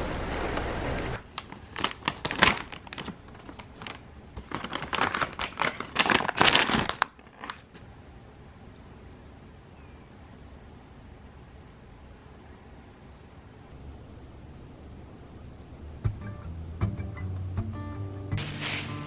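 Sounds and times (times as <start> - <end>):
packaging crinkling: 1.2 - 7.8
steady low rumble: 10.2 - 17.8.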